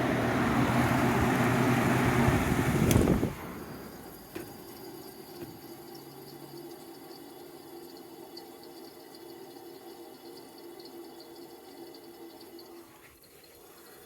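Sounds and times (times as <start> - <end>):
air conditioner low hum: 0.0 - 4.9
refrigerant trickling and gurgling: 3.1 - 14.0
faint irregular ticks: 4.2 - 14.0.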